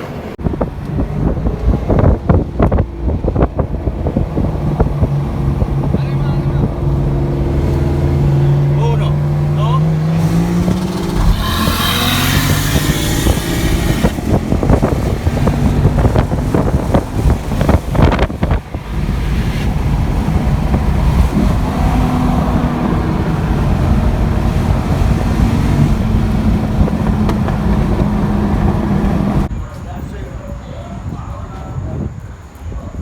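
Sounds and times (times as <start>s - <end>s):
wind buffeting microphone: 0.0s - 33.0s
car engine running: 0.4s - 29.5s
knocks and clatter: 10.2s - 18.4s, 25.7s - 29.5s.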